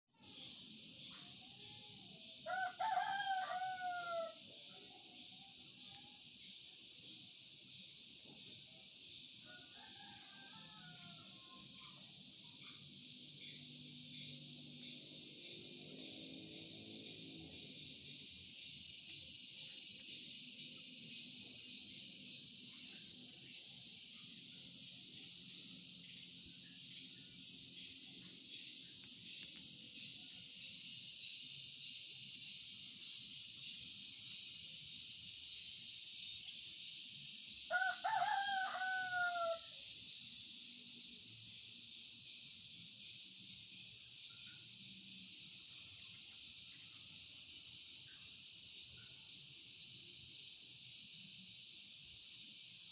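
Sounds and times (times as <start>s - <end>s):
high-pitched insect chorus: 0.0s - 52.9s
rooster crowing: 2.4s - 4.5s, 9.4s - 12.0s, 37.7s - 39.8s.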